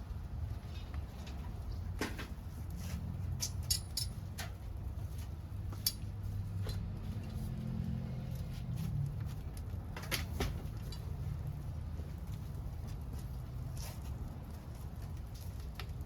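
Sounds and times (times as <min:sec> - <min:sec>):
wood fire crackling and popping: 0:09.0 - 0:16.0.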